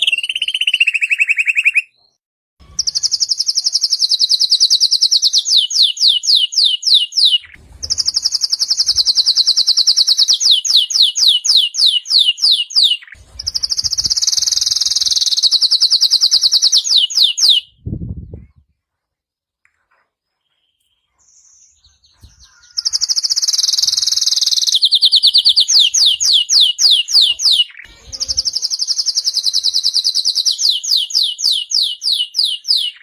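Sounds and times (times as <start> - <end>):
canary singing trills: 0.0 - 17.8, 19.9 - 33.0.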